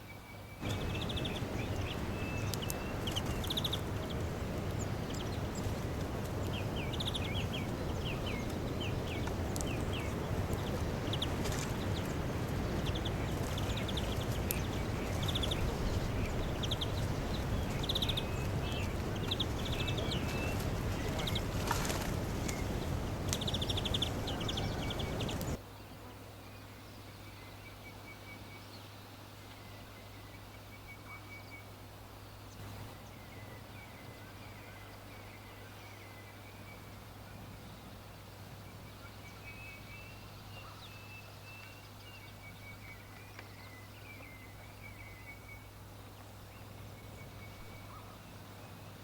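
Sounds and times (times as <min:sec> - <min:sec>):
steady background noise: 0:00.0 - 0:28.0
small birds chirping: 0:00.2 - 0:25.6.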